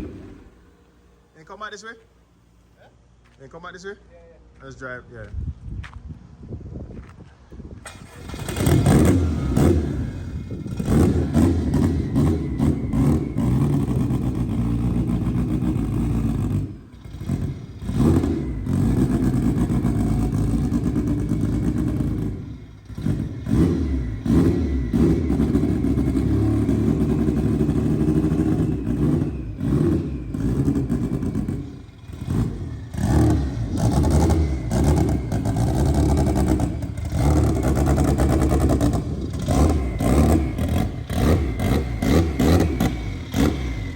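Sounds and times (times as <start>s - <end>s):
car engine revving under load: 0.0s - 1.3s, 7.8s - 43.9s.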